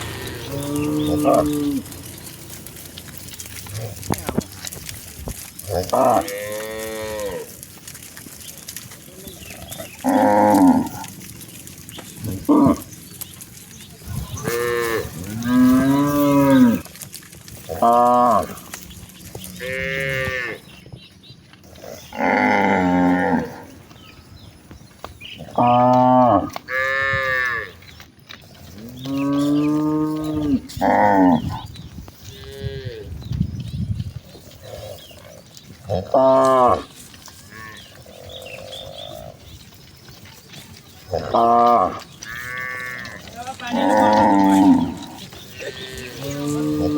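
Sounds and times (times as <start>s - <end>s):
cattle mooing: 0.0s - 8.4s, 9.1s - 13.4s, 14.1s - 17.0s, 17.6s - 18.8s, 19.4s - 20.7s, 21.8s - 23.8s, 25.4s - 27.8s, 28.7s - 33.2s, 35.9s - 39.5s, 41.1s - 46.9s.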